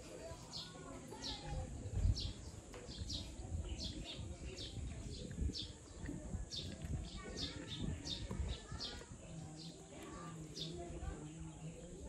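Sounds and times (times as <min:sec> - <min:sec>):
bumps and thuds near microphone: 0:01.4 - 0:09.1.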